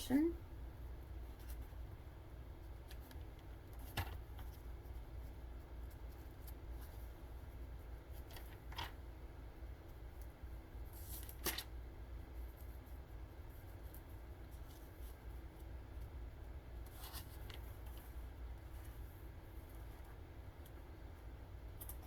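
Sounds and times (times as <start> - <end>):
low steady hum: 0.0 - 22.0
pages rustling and turning: 2.9 - 4.7, 8.1 - 9.0, 10.9 - 11.7, 16.8 - 18.2.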